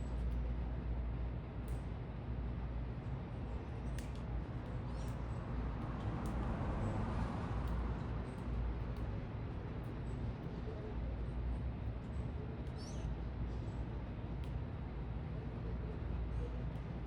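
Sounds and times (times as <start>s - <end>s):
distant traffic rumble: 0.0s - 17.0s
small birds chirping: 3.5s - 6.4s, 9.9s - 14.6s.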